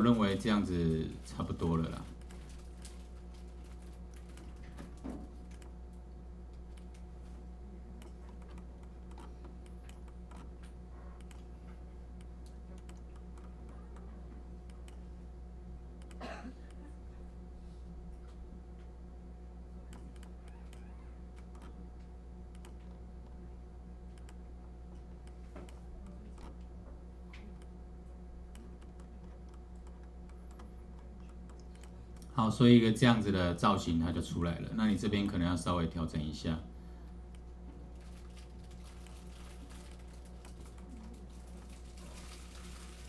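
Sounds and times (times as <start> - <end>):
low electrical hum: 0.0 - 43.0
computer mouse and keys clicking: 1.9 - 5.8, 6.5 - 7.3, 8.0 - 15.0, 16.0 - 16.8, 19.9 - 23.0, 24.1 - 26.7, 28.5 - 32.4, 38.3 - 43.0
keyboard and mouse clicks: 8.0 - 11.4, 19.9 - 21.8, 28.5 - 32.3.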